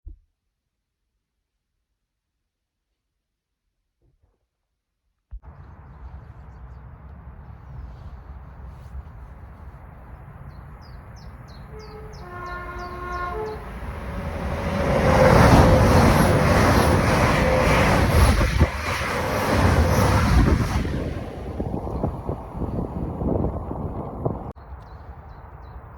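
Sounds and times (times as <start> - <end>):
train rumble and rail clatter: 5.5 - 24.6
two-note train horn: 11.5 - 15.9.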